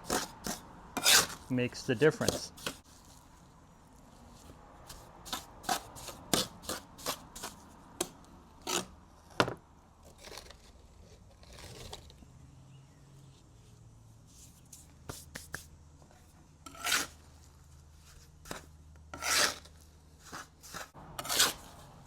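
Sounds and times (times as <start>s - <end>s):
trowel scraping mortar: 0.0s - 3.2s, 4.4s - 7.6s, 8.6s - 8.9s, 16.6s - 17.4s, 18.2s - 21.9s.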